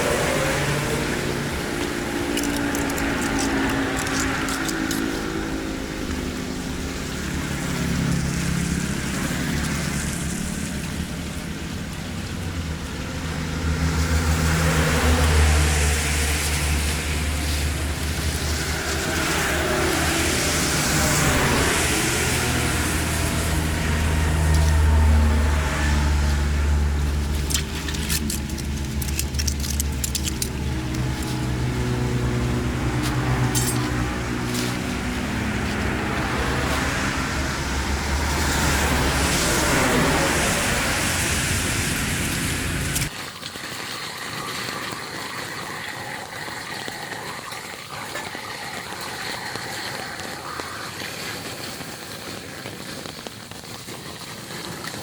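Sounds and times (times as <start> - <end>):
engine running steadily: 0.0 - 43.1.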